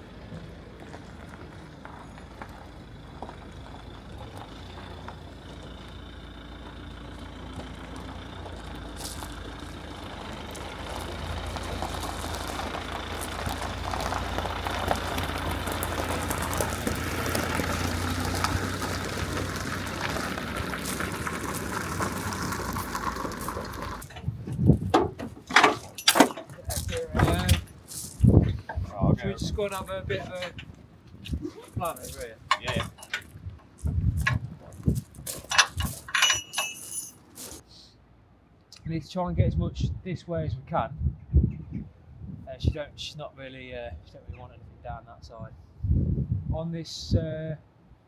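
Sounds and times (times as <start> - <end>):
heavy vehicle engine running: 0.0 - 31.1, 31.8 - 38.2.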